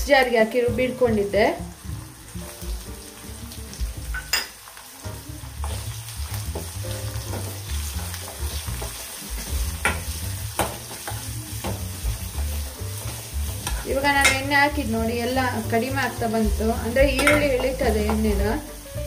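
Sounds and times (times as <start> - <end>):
vegetables sizzling in oil: 0.0 - 19.0
steel spoon stirring and scraping pan: 5.6 - 15.0.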